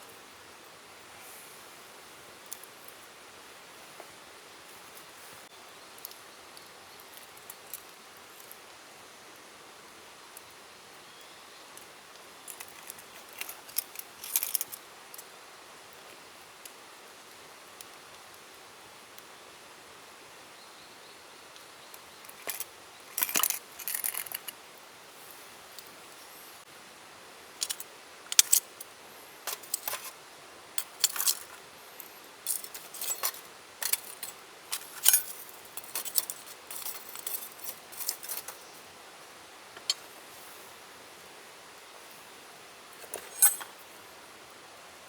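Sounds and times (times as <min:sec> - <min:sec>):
faint background hiss: 0:00.0 - 0:45.0
small metal objects clinking: 0:12.5 - 0:14.8, 0:22.3 - 0:24.6, 0:29.4 - 0:30.2, 0:30.8 - 0:38.7, 0:43.0 - 0:43.8.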